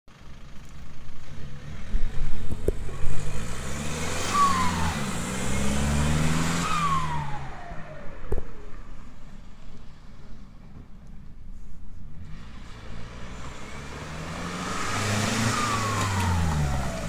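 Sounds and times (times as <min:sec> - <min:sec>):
diesel engine revving: 0:00.2 - 0:10.1, 0:12.1 - 0:17.0
turbo whistle: 0:04.2 - 0:05.8.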